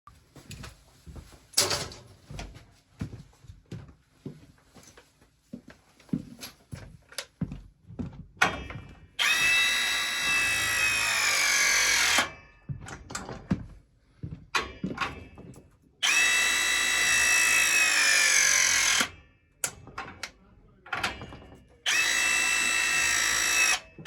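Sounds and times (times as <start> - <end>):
power tool motor whining: 9.2 - 12.3, 16.0 - 19.2, 21.9 - 24.0.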